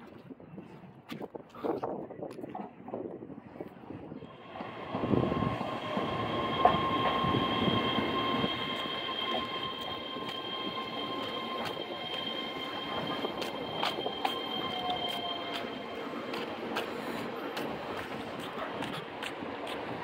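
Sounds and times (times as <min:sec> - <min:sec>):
train wheels rumbling on rails: 0:04.3 - 0:20.0
high-pitched wheel squeal: 0:04.4 - 0:16.5.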